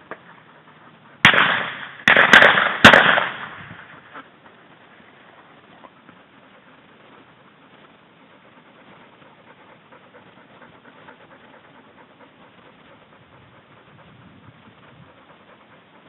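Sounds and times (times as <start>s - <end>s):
dog panting: 0.0s - 16.0s.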